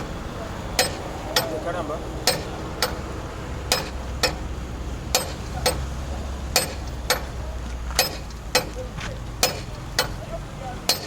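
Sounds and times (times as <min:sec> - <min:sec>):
ringing metallic taps: 0:00.8 - 0:01.6, 0:02.2 - 0:03.1, 0:06.6 - 0:10.2.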